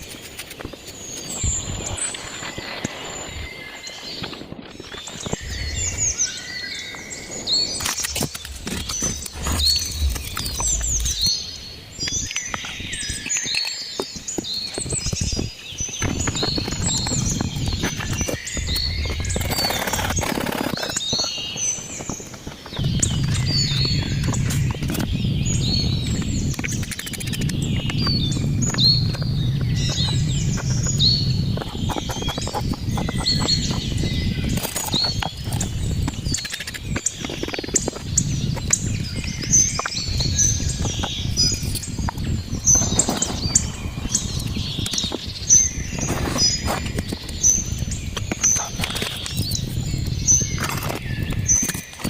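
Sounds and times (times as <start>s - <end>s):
birds chirping: 0.0s - 52.0s
low rumble: 8.4s - 12.1s.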